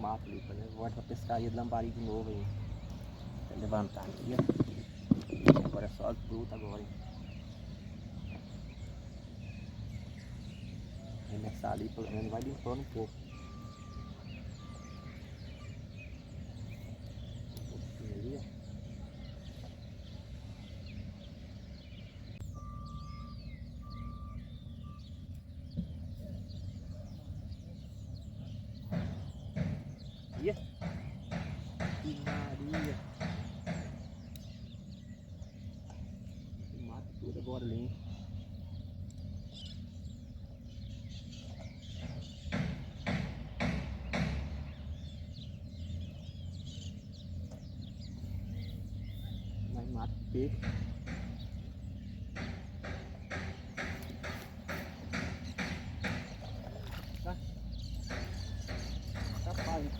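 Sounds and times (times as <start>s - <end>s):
wild birds chirping: 0.0s - 59.9s
whistled notes: 13.3s - 15.3s.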